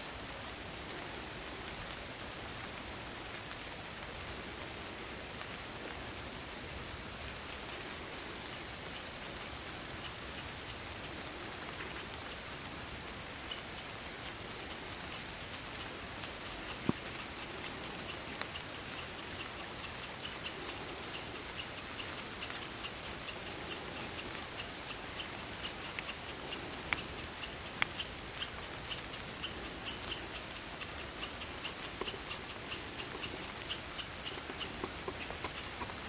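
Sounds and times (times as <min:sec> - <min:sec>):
crickets chirping: 0:13.2 - 0:36.0
sharp clicks: 0:13.5 - 0:36.0.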